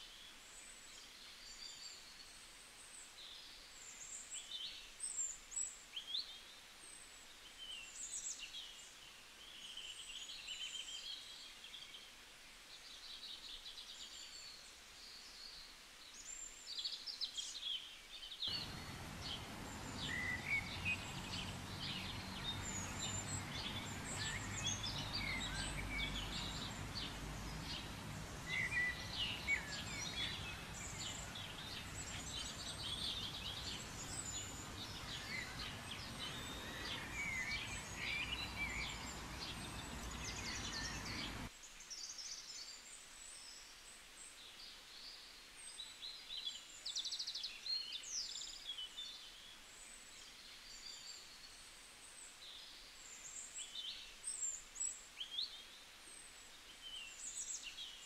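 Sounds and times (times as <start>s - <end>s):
outdoor background noise: 0.0s - 58.0s
small birds chirping and trilling: 12.7s - 58.0s.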